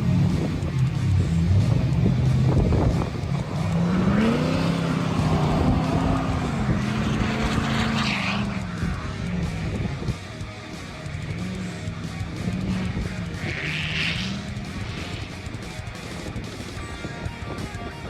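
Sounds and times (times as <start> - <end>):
diesel pickup engine revving: 0.0 - 16.8.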